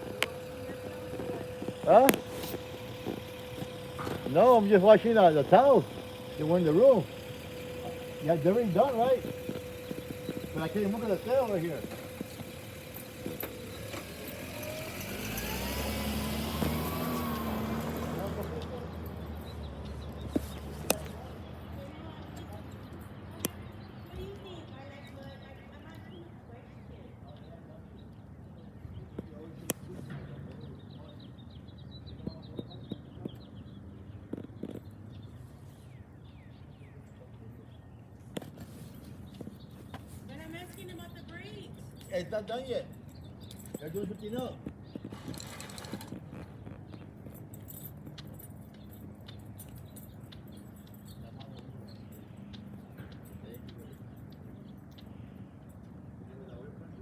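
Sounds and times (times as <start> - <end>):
small bird chirping: 0.0 - 17.3
garbage truck engine running: 0.0 - 21.7, 44.9 - 46.6.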